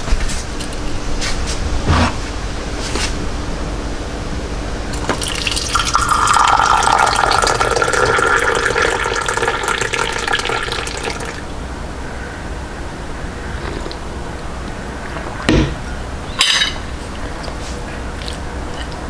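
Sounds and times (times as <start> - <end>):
water running from tap: 4.9 - 11.5.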